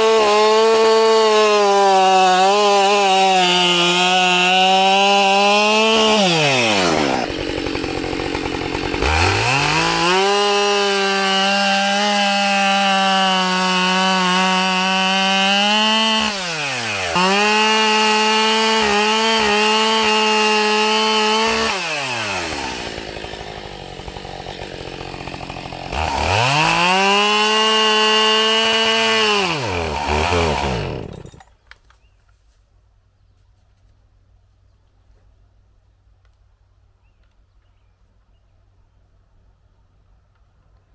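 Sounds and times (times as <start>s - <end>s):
chainsaw cutting a log: 0.0s - 31.5s.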